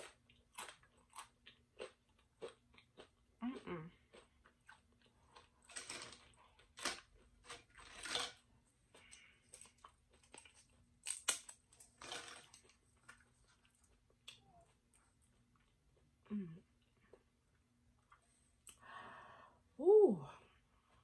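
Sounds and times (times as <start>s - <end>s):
chips crunching while chewed: 0.0s - 3.3s, 3.9s - 14.5s.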